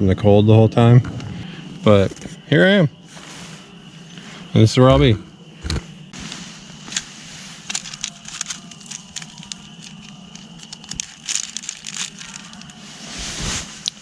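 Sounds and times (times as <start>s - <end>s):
hammock fabric rustling: 3.0s - 4.5s, 5.9s - 14.0s.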